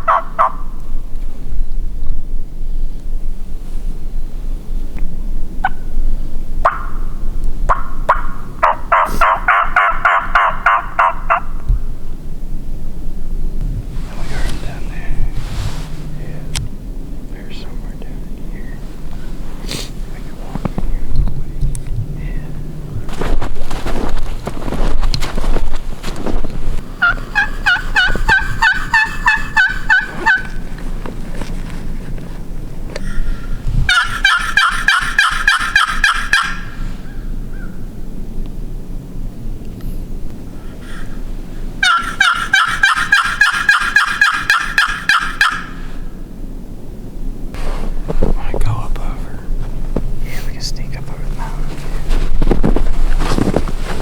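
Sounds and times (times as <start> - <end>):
turkey clucking and yelping: 0.0 - 0.7, 6.6 - 7.0, 7.7 - 11.7, 26.8 - 31.1, 32.9 - 37.8, 40.6 - 46.1
wind on microphone: 11.5 - 35.5, 47.5 - 54.0.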